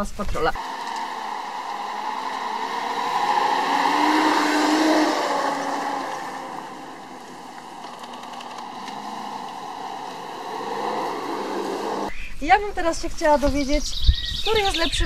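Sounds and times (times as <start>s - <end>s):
vehicle engine driving past: 0.6s - 12.1s.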